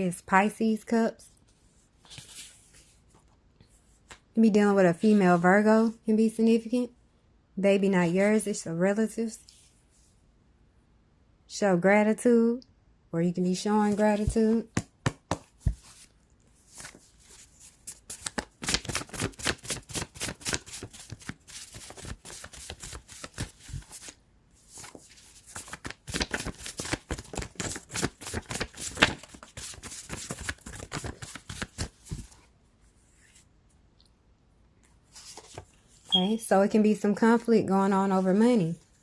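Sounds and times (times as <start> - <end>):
cards being shuffled: 16.7 - 32.4.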